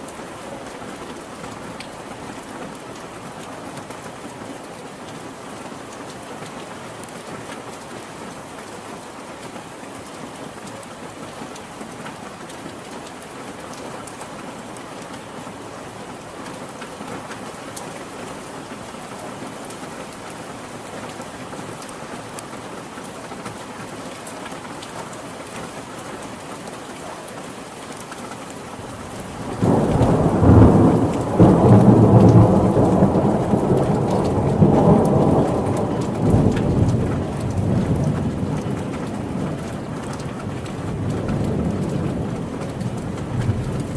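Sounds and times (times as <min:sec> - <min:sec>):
heavy rain hissing: 0:24.7 - 0:43.9
thunder rumbling: 0:28.8 - 0:43.9.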